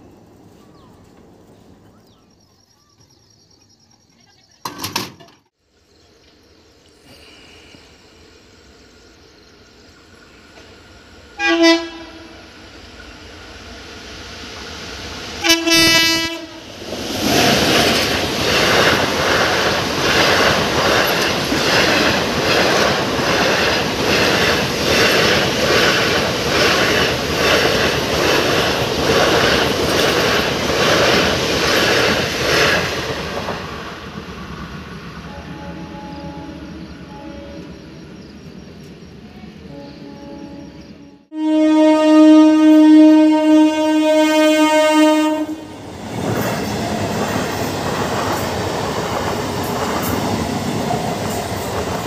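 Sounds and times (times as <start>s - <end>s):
train rushing past: 7.6s - 52.0s
locomotive horn blasts: 11.4s - 12.4s, 15.4s - 16.7s, 35.3s - 37.8s, 39.7s - 45.8s.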